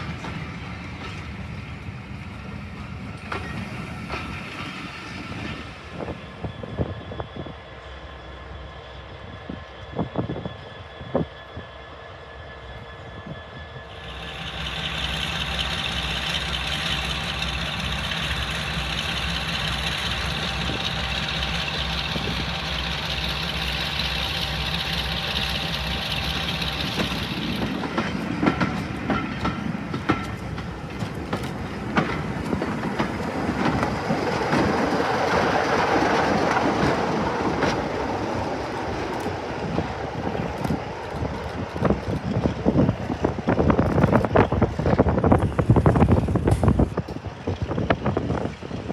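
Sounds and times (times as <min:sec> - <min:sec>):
train wheels clattering over rails: 0:00.0 - 0:06.4, 0:13.9 - 0:48.9
locomotive engine running: 0:12.7 - 0:48.9.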